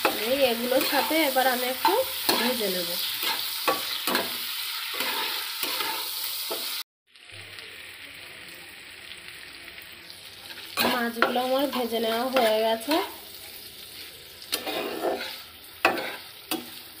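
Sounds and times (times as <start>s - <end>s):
metal spatula scraping a pan: 0.0s - 6.8s, 10.4s - 17.0s
prawns sizzling in hot oil: 0.0s - 17.0s.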